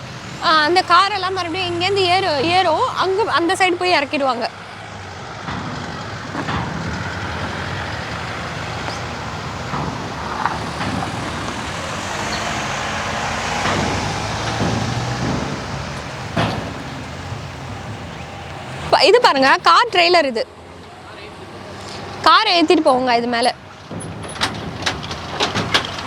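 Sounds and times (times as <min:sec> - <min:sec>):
vehicles driving past: 0:00.0 - 0:26.0
tyre noise: 0:04.6 - 0:20.1, 0:21.7 - 0:26.0
deep engine hum: 0:04.8 - 0:20.0.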